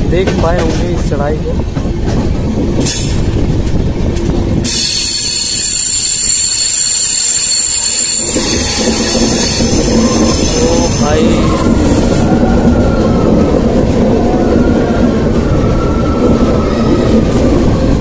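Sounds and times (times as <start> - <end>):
train coaches rumbling: 0.0 - 18.0
train wheels squealing: 4.6 - 13.2.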